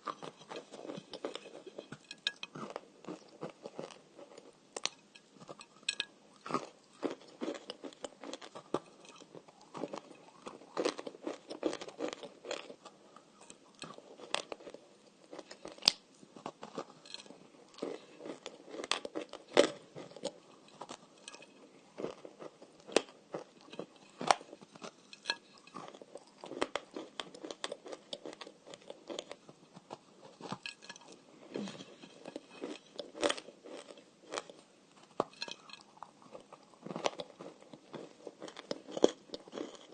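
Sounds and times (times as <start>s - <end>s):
dry clay being chewed: 0.0s - 39.9s.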